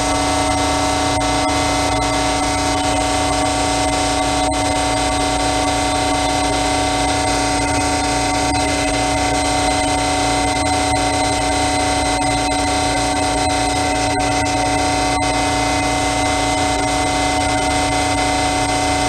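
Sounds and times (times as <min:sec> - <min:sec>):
machine droning: 0:00.0 - 0:19.0.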